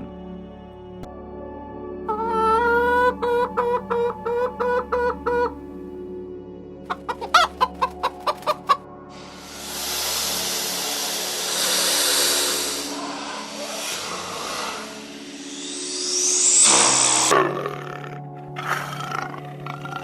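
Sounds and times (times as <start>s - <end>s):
chicken clucking: 2.1s - 5.6s, 6.9s - 8.8s
steady rushing hiss: 9.1s - 17.3s.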